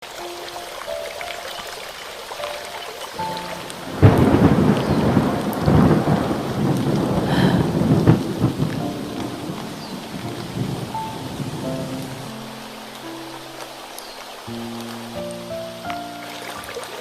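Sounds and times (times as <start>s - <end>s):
heavy rain: 0.0s - 17.0s
thunder crashing and rumbling: 3.7s - 12.3s.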